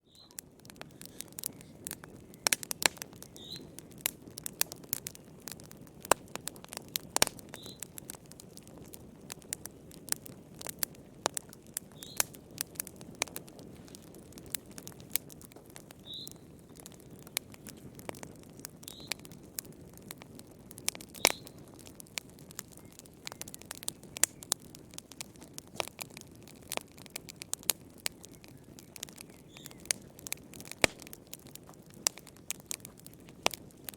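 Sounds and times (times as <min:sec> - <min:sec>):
faint high chirps: 0:00.0 - 0:00.4
wood fire crackling and popping: 0:00.0 - 0:33.9.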